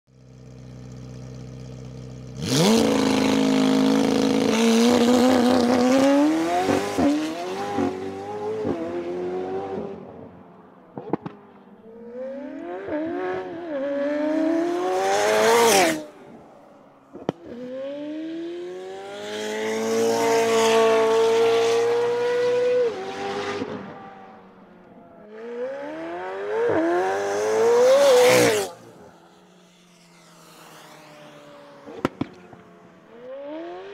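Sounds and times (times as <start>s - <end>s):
car engine revving: 0.3s - 10.1s
exhaust pop: 31.9s - 32.7s.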